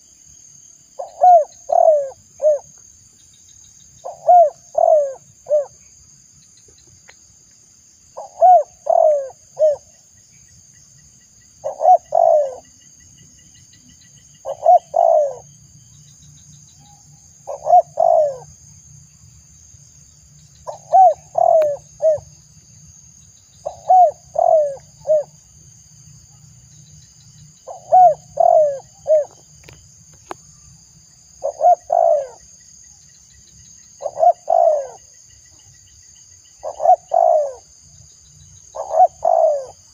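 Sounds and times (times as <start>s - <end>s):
dove cooing: 1.0s - 2.7s, 4.0s - 5.8s, 8.2s - 9.9s, 11.6s - 12.7s, 14.4s - 15.5s, 17.4s - 18.5s, 20.6s - 22.3s, 23.6s - 25.4s, 27.7s - 29.5s, 31.4s - 32.4s, 34.0s - 35.1s, 36.6s - 37.7s, 38.7s - 39.8s.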